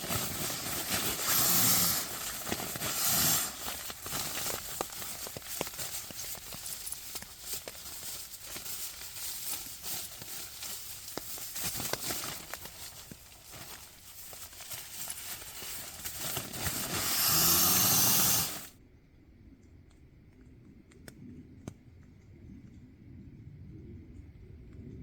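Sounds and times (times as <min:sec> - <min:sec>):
loud steady hiss: 0:00.0 - 0:18.7
rustling and crackling: 0:00.0 - 0:18.7
faint steady hum: 0:00.0 - 0:25.0.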